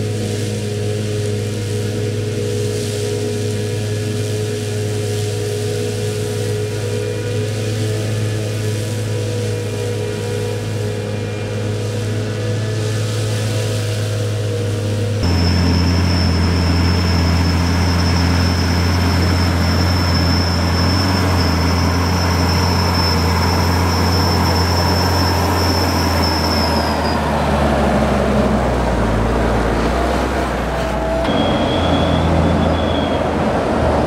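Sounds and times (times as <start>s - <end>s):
diesel engine running: 0.0s - 34.0s
high-pitched whine: 0.0s - 34.0s.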